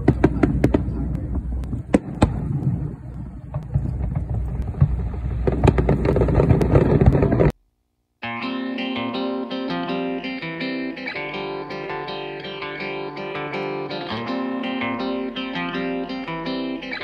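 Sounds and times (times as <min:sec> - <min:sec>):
fireworks bangs and crackles: 0:00.0 - 0:07.6
low rumble: 0:00.0 - 0:07.6
electric guitar music: 0:08.2 - 0:17.0.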